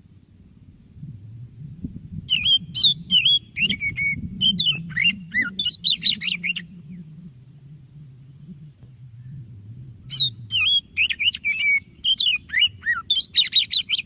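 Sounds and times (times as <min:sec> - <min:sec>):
magpie-robin singing whistled notes: 0:02.3 - 0:07.0, 0:10.0 - 0:14.0.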